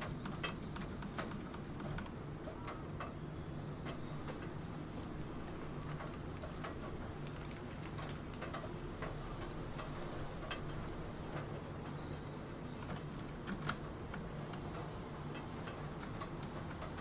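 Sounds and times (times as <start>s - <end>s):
computer keyboard keys clicking: 0.0s - 3.2s, 12.7s - 17.0s.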